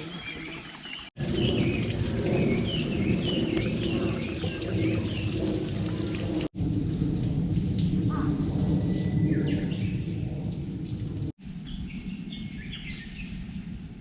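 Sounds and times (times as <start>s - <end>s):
steady low rumble: 1.2s - 14.0s
bird chirping: 11.6s - 13.6s.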